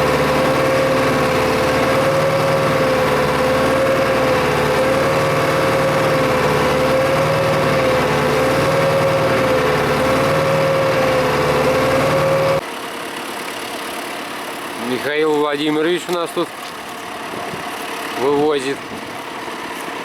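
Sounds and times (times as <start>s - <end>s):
wavering engine whine: 0.0s - 12.6s
tractor engine running: 0.0s - 20.0s.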